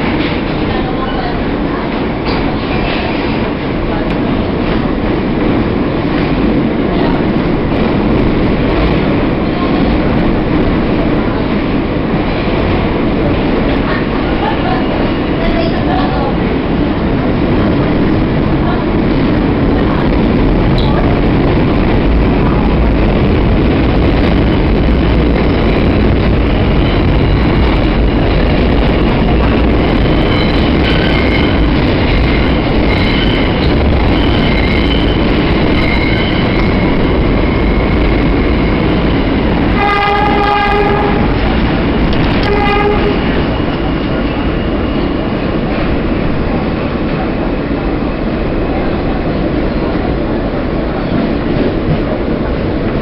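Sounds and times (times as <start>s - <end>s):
subway train rumbling in tunnel: 0.0s - 53.0s
high wheel squeal: 29.9s - 37.9s
train horn blasts: 39.7s - 41.4s, 42.3s - 43.4s.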